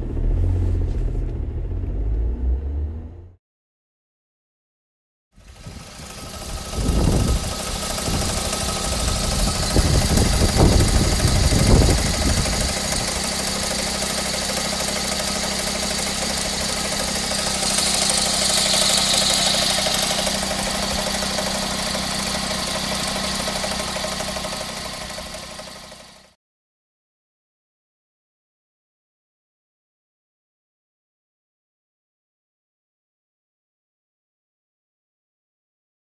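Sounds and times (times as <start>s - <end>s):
car engine idling: 5.4s - 26.3s
knocking rattle in engine: 5.4s - 26.4s
hiss: 15.2s - 24.1s.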